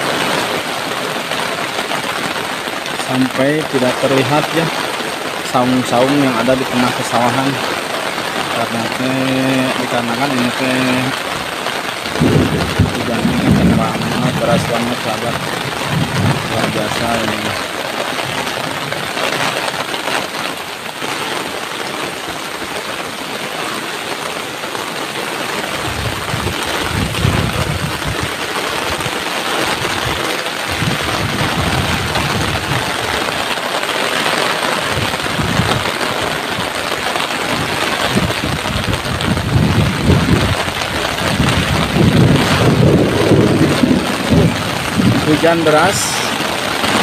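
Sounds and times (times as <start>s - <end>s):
heavy rain pouring: 0.0s - 47.0s
wind buffeting microphone: 11.4s - 19.1s, 25.7s - 33.5s, 34.8s - 36.8s, 37.4s - 47.0s.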